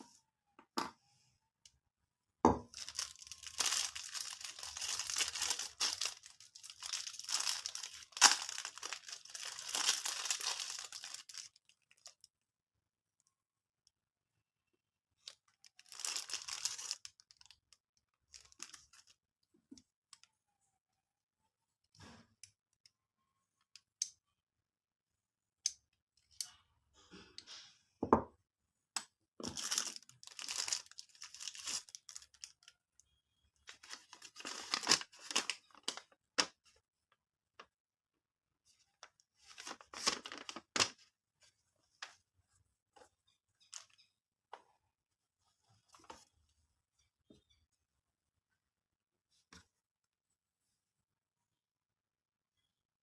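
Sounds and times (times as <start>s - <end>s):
packaging crinkling and tearing: 2.7s - 12.2s, 15.6s - 17.6s, 18.3s - 19.2s, 29.4s - 32.7s, 33.7s - 36.6s, 39.4s - 41.0s.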